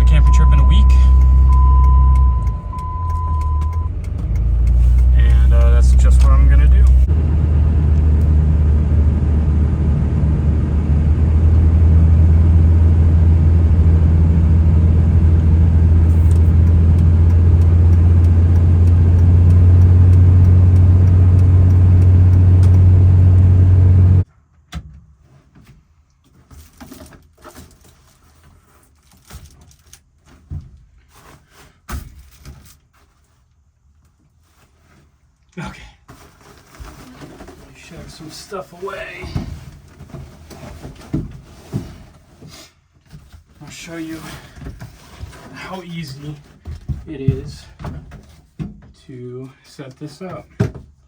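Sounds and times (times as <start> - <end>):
truck engine rumble: 0.0 - 24.3.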